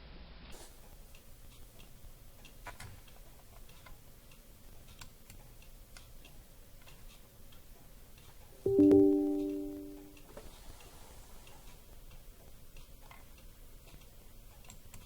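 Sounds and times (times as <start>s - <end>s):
low steady hiss: 8.7s - 10.2s.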